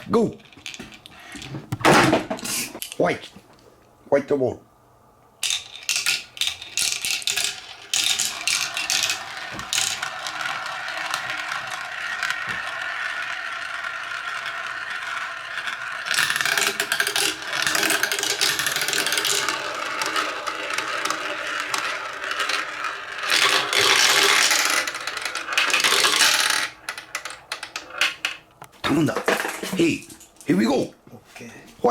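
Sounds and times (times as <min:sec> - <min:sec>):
ball rolling on plastic track: 0:00.0 - 0:02.9, 0:05.4 - 0:30.8
ball clicking between pieces: 0:05.4 - 0:29.6.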